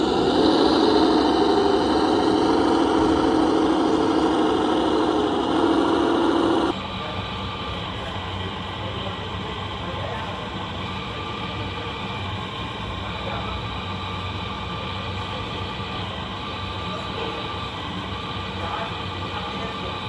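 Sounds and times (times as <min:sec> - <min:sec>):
toy truck motor hum: 0:00.0 - 0:06.8.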